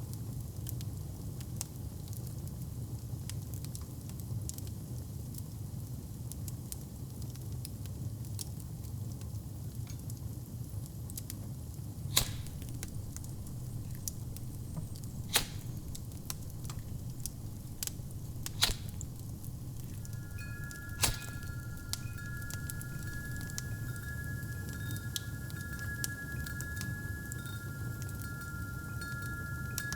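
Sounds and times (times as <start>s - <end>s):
wood fire crackling: 11.9s - 29.9s
fire low rumble: 12.0s - 29.9s
sharp fire pops: 12.0s - 29.9s
wind chime ringing: 12.0s - 29.9s.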